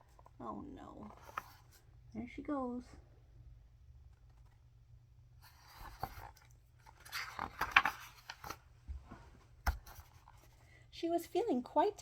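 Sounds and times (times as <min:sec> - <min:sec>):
paper pages rustling: 0:01.0 - 0:01.8, 0:05.4 - 0:10.6.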